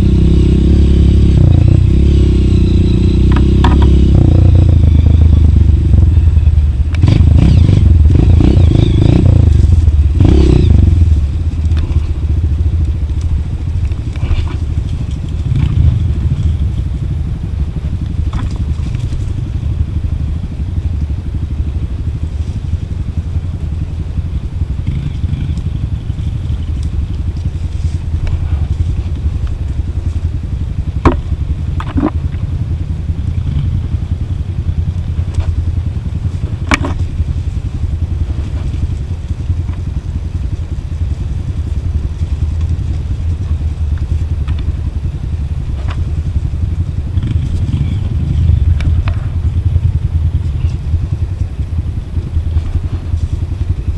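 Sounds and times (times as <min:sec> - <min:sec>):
vehicle rumbling on dirt trail: 0:00.0 - 0:53.9
rattles and knocks: 0:03.3 - 0:04.1.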